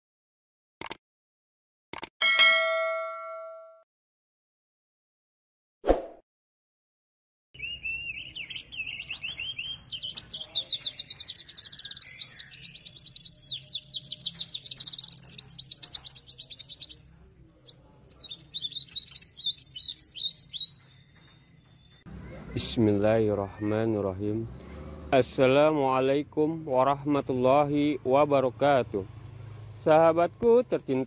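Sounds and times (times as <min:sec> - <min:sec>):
songbird trilling and whistling: 0:07.6 - 0:17.0, 0:17.7 - 0:22.8.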